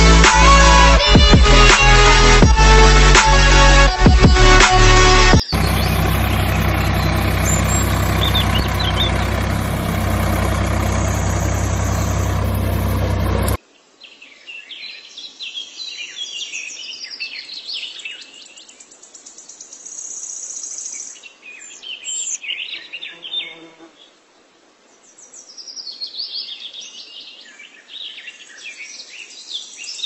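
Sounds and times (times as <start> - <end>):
loud humming drone: 0.0 - 13.6
birds chirping: 5.4 - 13.6.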